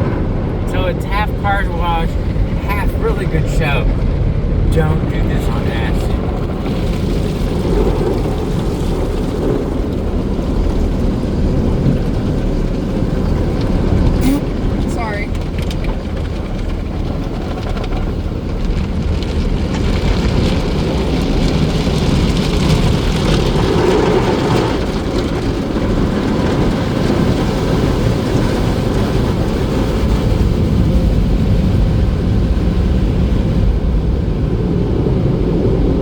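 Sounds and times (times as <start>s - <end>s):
low rumble: 0.0s - 26.7s
car wash machinery rushing: 0.0s - 36.0s.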